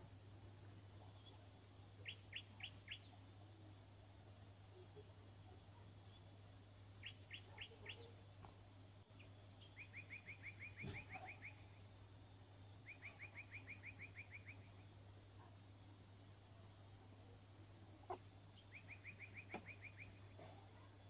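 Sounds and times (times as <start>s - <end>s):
steady low hum: 0.0s - 21.0s
bird chirps: 1.0s - 3.4s, 4.7s - 8.2s, 9.1s - 11.9s, 12.8s - 14.9s, 18.1s - 20.9s
bird trills: 2.0s - 3.2s, 6.9s - 8.1s, 9.6s - 11.8s, 12.8s - 14.8s, 18.1s - 20.6s.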